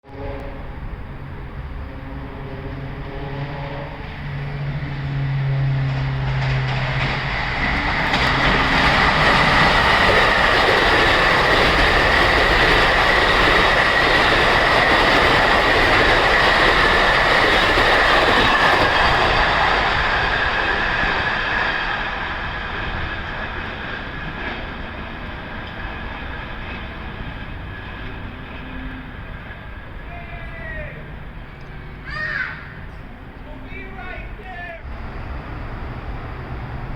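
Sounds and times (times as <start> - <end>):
train horn: 0.0 - 6.7
train wheels rushing on rail: 0.1 - 36.9.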